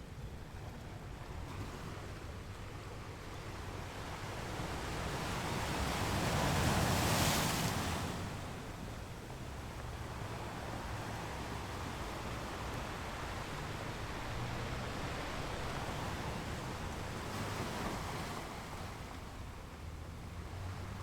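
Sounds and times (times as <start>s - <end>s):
ocean waves on a beach: 0.0s - 21.0s.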